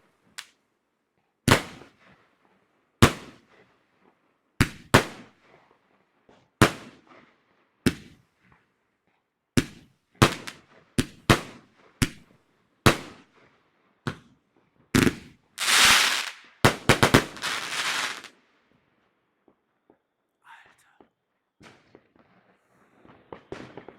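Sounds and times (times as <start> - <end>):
fireworks bangs: 15.0 - 18.3, 20.5 - 23.9
fireworks hissing crackle: 15.6 - 18.3.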